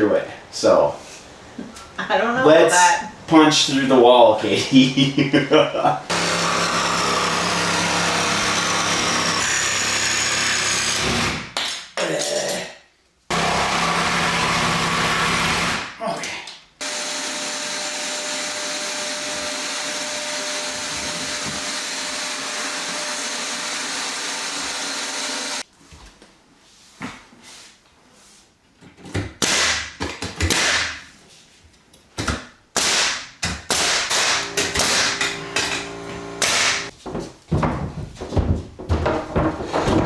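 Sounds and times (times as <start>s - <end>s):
small electric motor running: 16.8s - 25.6s, 34.4s - 36.9s.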